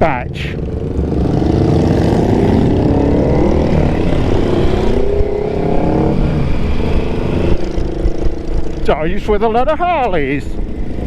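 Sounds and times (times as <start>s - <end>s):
motorcycle engine running: 0.0s - 11.0s
wind rush over helmet: 1.0s - 9.4s.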